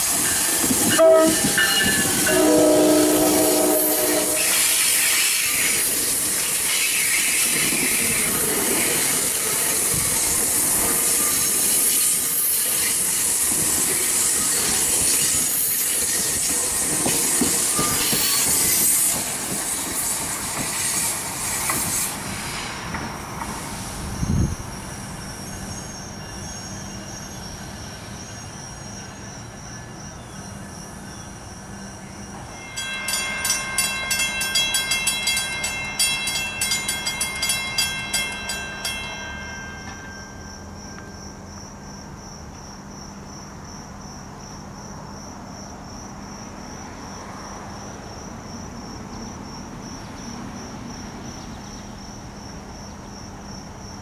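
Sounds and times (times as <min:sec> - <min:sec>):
crickets chirping: 0:00.0 - 0:54.0
train wheel and rail noise: 0:00.0 - 0:54.0.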